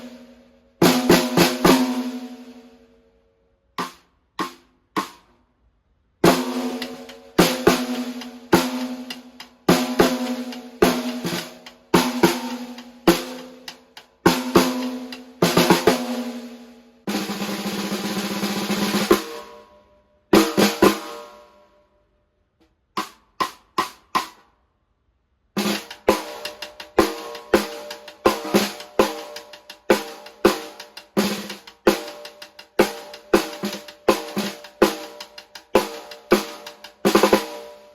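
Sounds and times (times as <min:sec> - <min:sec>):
snare drum strokes: 0:03.8 - 0:05.3, 0:25.6 - 0:37.8
snare drum roll: 0:06.2 - 0:16.5, 0:17.1 - 0:19.5, 0:25.6 - 0:37.8.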